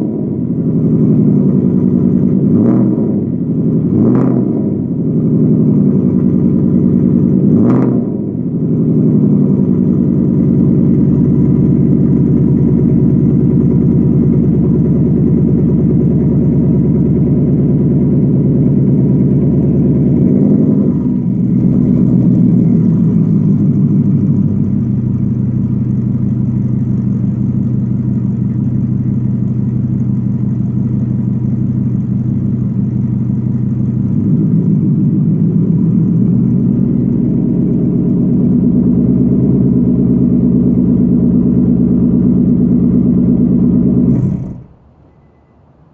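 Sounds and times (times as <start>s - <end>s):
car engine idling: 0.0s - 45.9s
engine rev blip: 6.1s - 9.8s, 33.9s - 45.9s.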